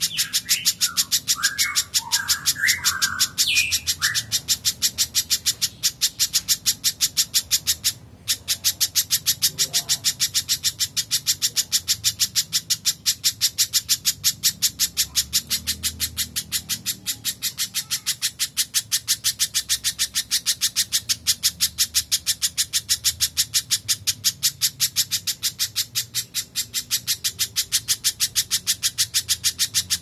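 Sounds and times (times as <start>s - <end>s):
lower slurred bird notes: 0.0s - 10.2s
bird sharp high chips: 0.0s - 30.0s.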